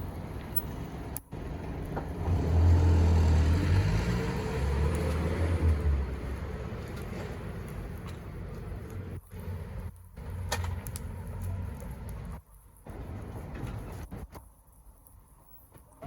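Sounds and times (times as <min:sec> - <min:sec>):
car passing by: 0:02.0 - 0:07.6.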